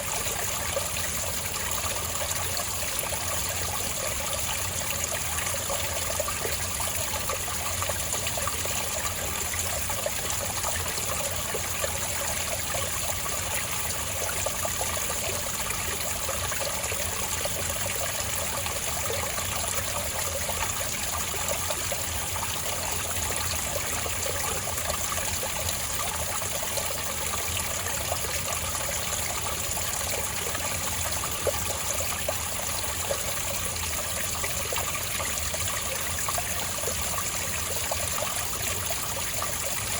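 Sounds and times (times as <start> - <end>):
spring water trickling: 0.0 - 39.9.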